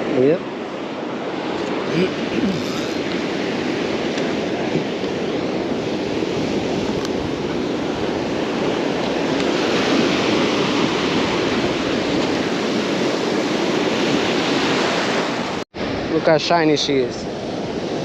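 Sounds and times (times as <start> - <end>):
surf breaking on beach: 0.0 - 18.0
wind on microphone: 0.0 - 18.0.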